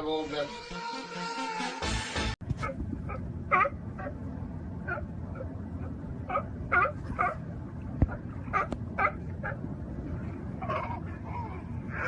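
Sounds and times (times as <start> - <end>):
dog yipping and whimpering: 2.6 - 4.1.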